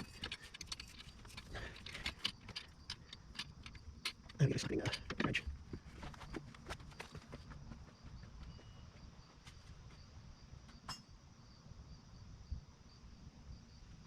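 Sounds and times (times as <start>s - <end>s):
wrench clicking on bolts: 0.0s - 5.2s.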